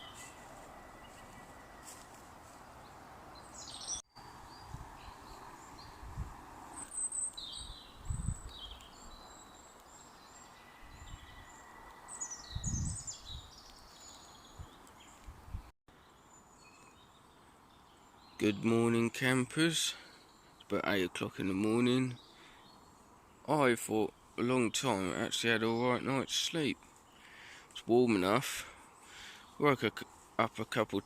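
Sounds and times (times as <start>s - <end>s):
small birds chirping: 0.0s - 19.4s, 20.0s - 31.0s
faint steady hiss: 13.5s - 31.0s.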